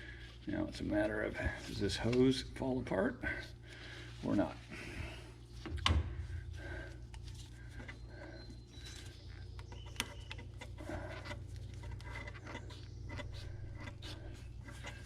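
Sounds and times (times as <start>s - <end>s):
steady low hum: 0.0s - 15.0s
hands twisting rubber hose: 6.6s - 15.0s.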